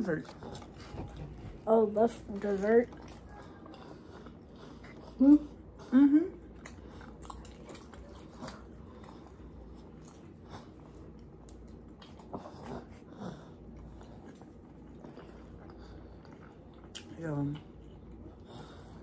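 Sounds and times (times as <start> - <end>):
low steady hum: 0.0 - 19.0
people chewing food: 0.0 - 19.0.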